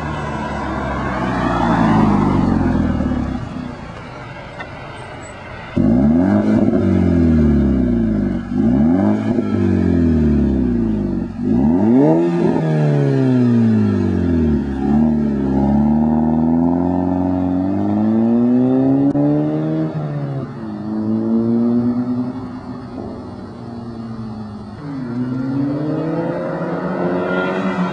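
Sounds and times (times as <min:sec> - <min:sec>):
turbocharged car engine revving: 0:05.7 - 0:20.0.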